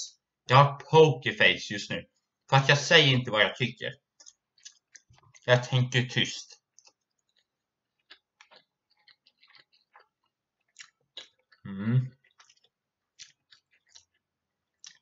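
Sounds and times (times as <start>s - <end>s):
person chewing: 4.1s - 5.5s, 6.6s - 15.0s
wet mouth clicks and smacks: 4.2s - 5.5s, 6.8s - 11.6s, 12.2s - 15.0s.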